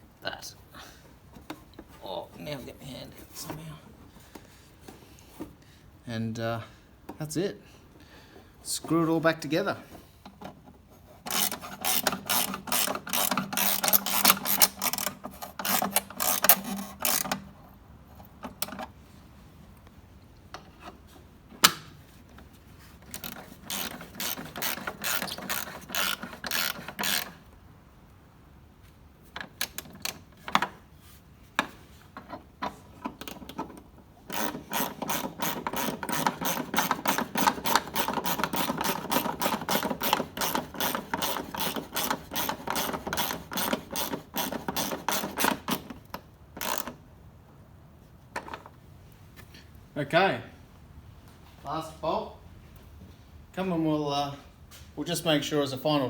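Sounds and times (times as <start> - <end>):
hand ratchet clicking: 11.3 - 17.4, 23.1 - 27.4, 33.2 - 47.0.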